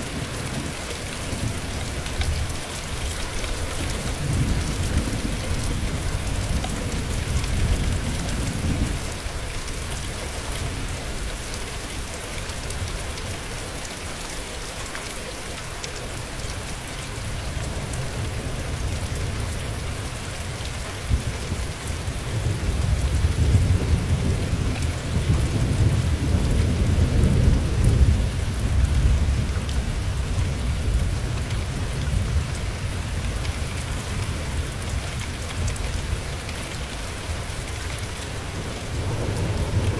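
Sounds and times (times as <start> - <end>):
steady rain falling: 0.0 - 39.9
rolling thunder: 21.1 - 34.6, 38.5 - 39.9.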